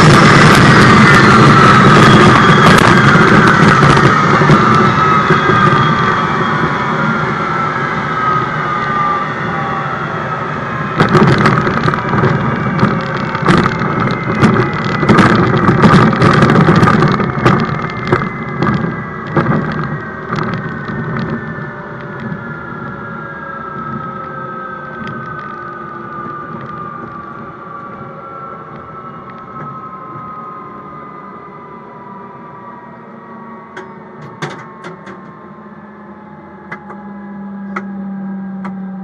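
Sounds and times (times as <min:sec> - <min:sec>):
jet engine winding down: 0:00.0 - 0:39.0
sharp cracks and pops: 0:11.0 - 0:22.4.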